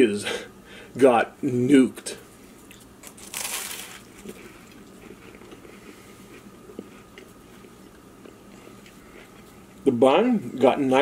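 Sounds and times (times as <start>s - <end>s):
person chewing: 2.6s - 9.8s.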